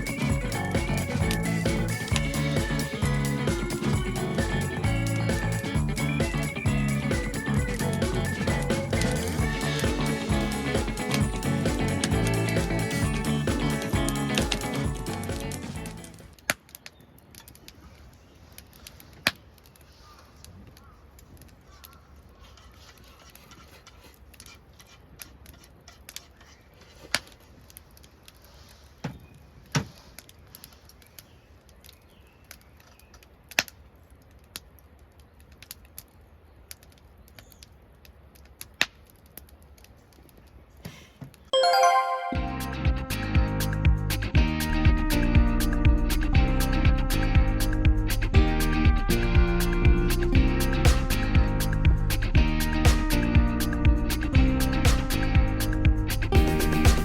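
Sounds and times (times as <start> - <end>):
campfire crackling: 13.7 - 23.4, 30.0 - 40.8.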